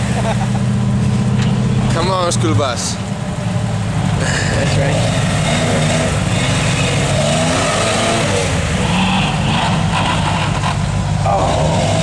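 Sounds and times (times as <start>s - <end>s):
off-road vehicle engine under load: 0.0s - 12.0s.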